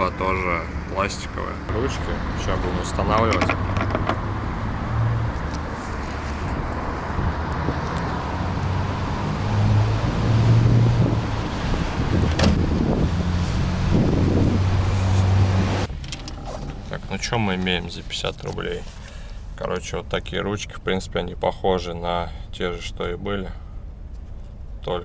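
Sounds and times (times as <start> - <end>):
car engine humming: 0.0 - 24.8
light knocks: 3.0 - 4.4.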